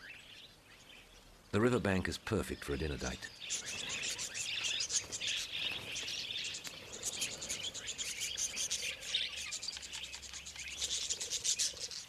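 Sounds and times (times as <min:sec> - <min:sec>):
flock of budgerigars chattering: 0:00.0 - 0:12.0.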